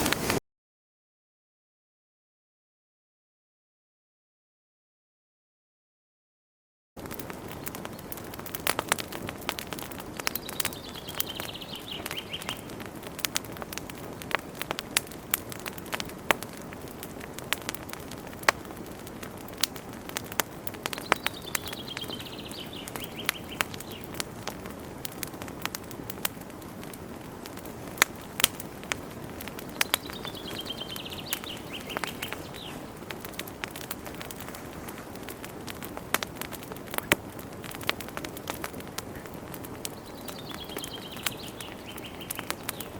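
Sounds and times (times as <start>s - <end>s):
wood fire crackling and popping: 0.0s - 0.4s, 7.0s - 42.9s
bird singing chirps: 10.4s - 12.7s, 21.0s - 24.2s, 29.6s - 32.9s, 39.9s - 42.9s.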